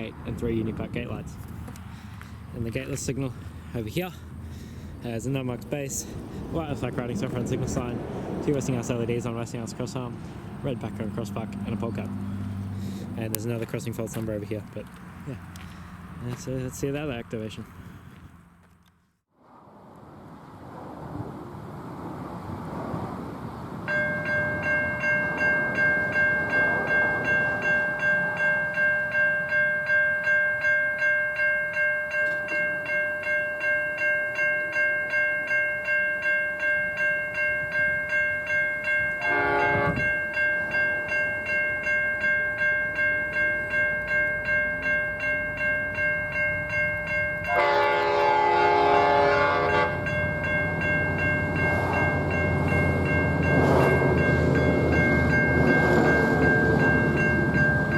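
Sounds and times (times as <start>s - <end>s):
train rumbling: 0.0s - 18.6s, 19.5s - 29.6s, 37.6s - 57.9s
level crossing bells ringing: 23.9s - 57.9s
train horn: 39.2s - 40.1s, 47.5s - 50.2s.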